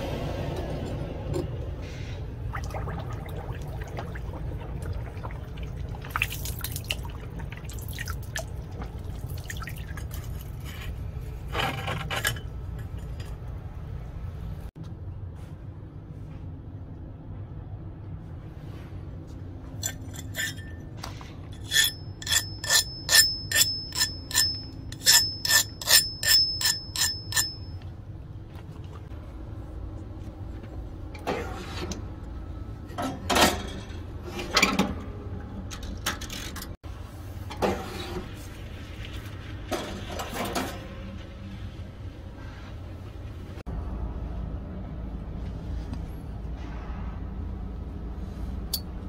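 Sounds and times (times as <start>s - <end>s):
dull metal clanks and rattles: 32.9s - 36.8s.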